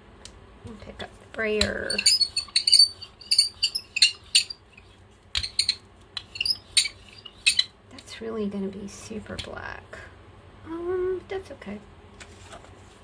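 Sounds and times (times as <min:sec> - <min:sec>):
paint roller squeaking and clicking: 0:01.5 - 0:07.7.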